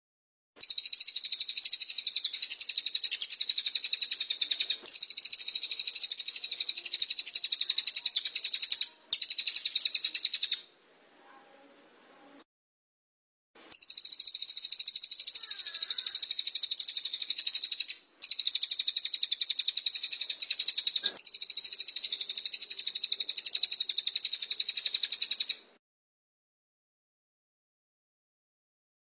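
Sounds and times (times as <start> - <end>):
songbird rapid high trill: 0.6 - 10.7, 13.7 - 25.6.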